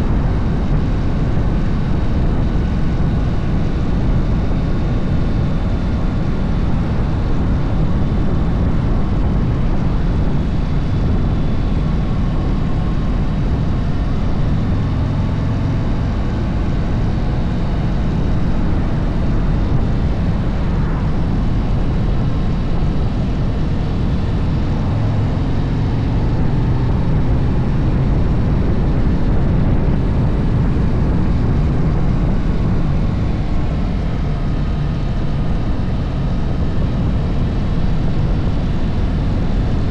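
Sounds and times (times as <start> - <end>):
motorcycle engine rumbling: 5.7 - 36.4
rushing air: 5.8 - 35.6.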